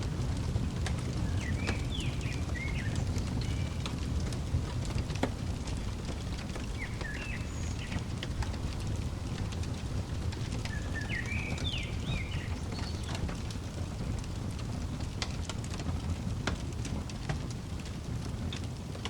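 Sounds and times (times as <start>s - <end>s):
fireplace crackling: 0.0s - 19.0s
bird chirping: 1.1s - 4.0s, 6.4s - 13.3s.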